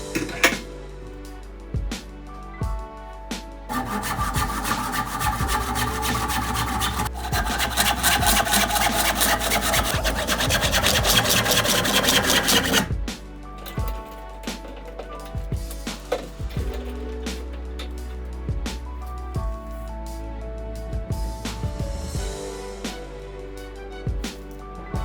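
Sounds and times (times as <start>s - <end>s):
soft background music: 0.0s - 25.0s
hand tool rasping wood: 3.7s - 13.0s.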